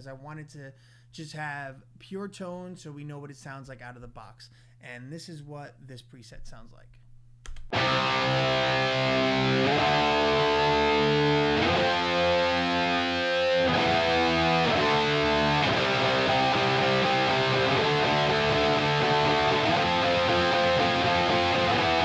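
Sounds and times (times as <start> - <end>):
distorted electric guitar chords: 7.7 - 22.0.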